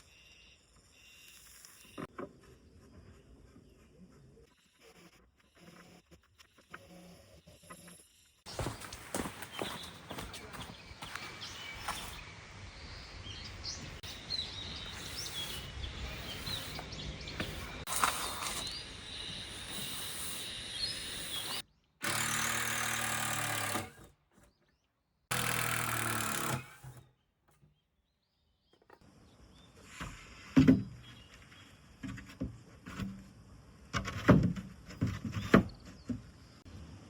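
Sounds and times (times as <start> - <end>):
small birds chirping: 6.5 - 23.0
motorised power tool running: 17.4 - 24.1, 25.3 - 27.0.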